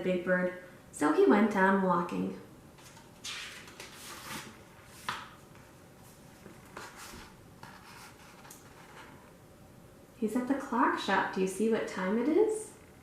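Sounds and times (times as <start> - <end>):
paper pages rustling: 2.8 - 9.3.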